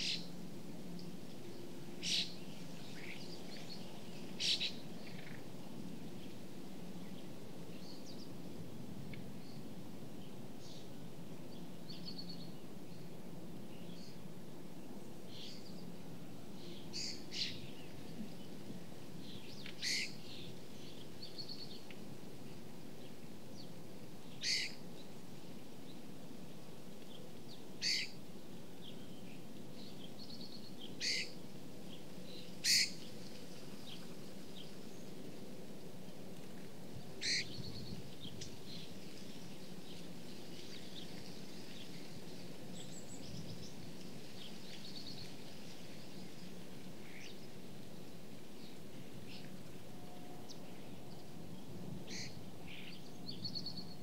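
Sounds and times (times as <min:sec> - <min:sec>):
steady low background noise: 0:00.0 - 0:54.0
short bird calls: 0:19.8 - 0:20.2, 0:24.4 - 0:24.8, 0:27.8 - 0:28.2, 0:31.0 - 0:31.4, 0:32.6 - 0:33.0, 0:37.2 - 0:37.6.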